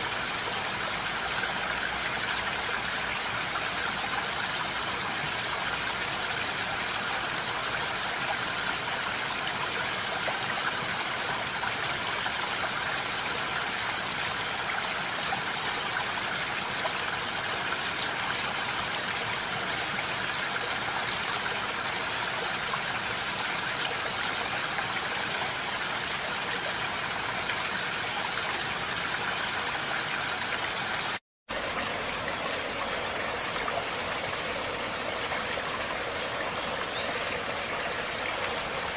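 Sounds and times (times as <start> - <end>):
flowing water rushing: 0.0 - 38.9.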